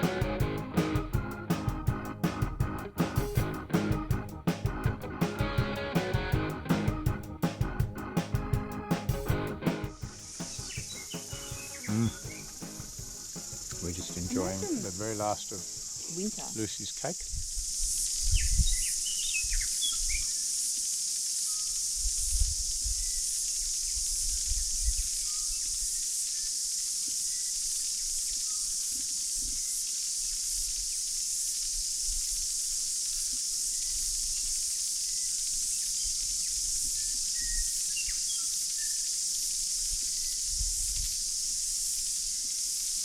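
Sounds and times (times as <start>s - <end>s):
high-pitched insect chorus: 9.7s - 43.0s
bird chirps: 9.9s - 16.6s, 18.3s - 20.6s, 35.1s - 39.2s
wind buffeting microphone: 17.3s - 20.2s.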